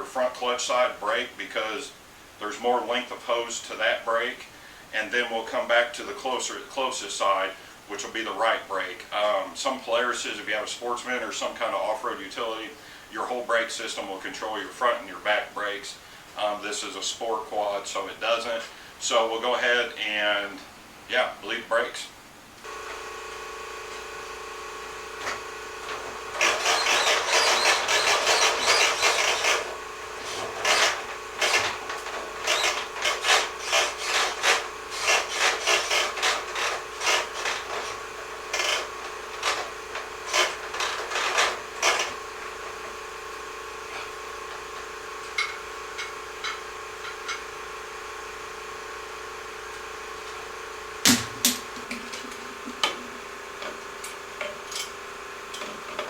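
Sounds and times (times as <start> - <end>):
rough scraping handling noises: 25.1 - 43.0.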